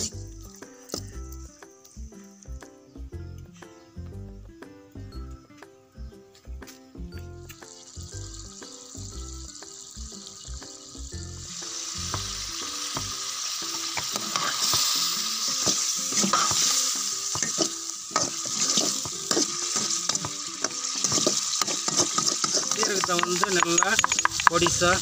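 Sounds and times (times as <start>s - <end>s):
faint background music: 0.0s - 25.0s
liver sizzling in a pan: 7.5s - 25.0s
steel ladle scraping a pan: 12.8s - 24.5s.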